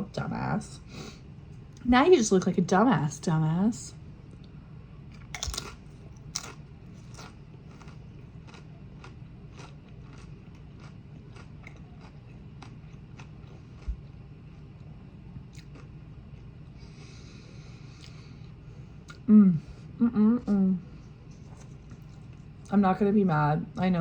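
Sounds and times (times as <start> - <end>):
chips crunching being chewed: 5.1 - 14.7, 15.5 - 16.5.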